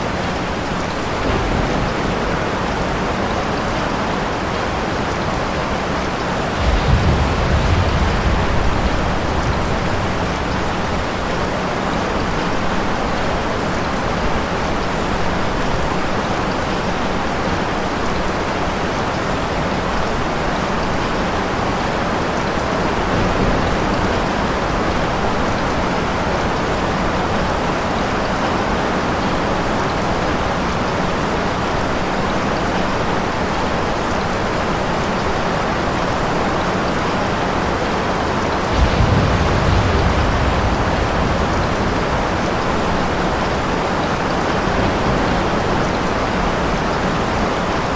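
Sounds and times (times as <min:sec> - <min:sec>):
steady rain: 0:00.0 - 0:47.9
thunder rumble: 0:00.1 - 0:14.1, 0:22.7 - 0:28.2, 0:37.3 - 0:47.9.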